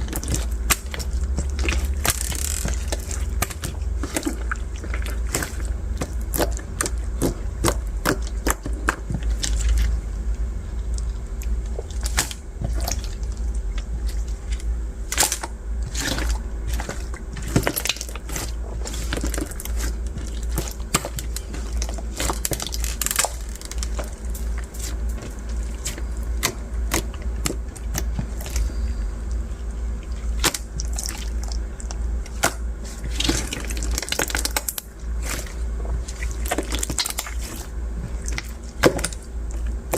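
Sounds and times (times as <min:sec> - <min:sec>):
slime squishing: 0:00.0 - 0:39.9
bead slime crackling and popping: 0:00.1 - 0:03.7.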